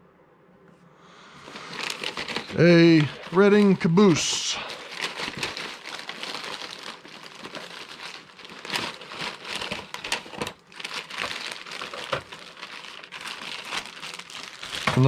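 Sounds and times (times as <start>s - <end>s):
crinkly packaging unwrapped: 1.4s - 15.0s.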